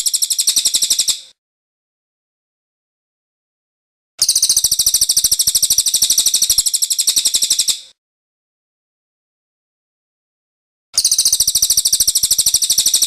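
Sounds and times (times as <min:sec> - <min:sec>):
bird singing a rolling trill: 0:00.0 - 0:01.2, 0:11.0 - 0:13.0.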